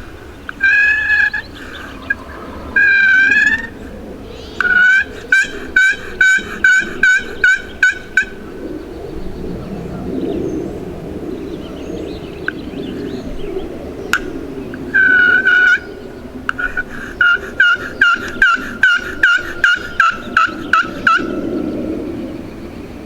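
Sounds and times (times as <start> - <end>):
wild turkey yelping: 0.0 - 8.8, 14.1 - 21.8
woods background: 0.0 - 23.0.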